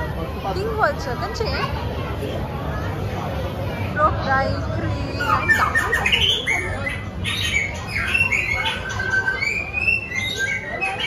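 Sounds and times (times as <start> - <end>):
birds calling: 5.0 - 11.0.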